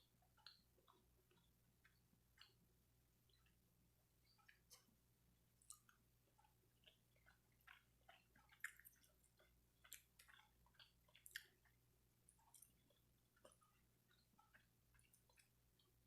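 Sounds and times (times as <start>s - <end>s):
person chewing food: 0.0s - 16.0s
mouth smacks and clicks: 0.4s - 2.6s, 5.6s - 15.9s.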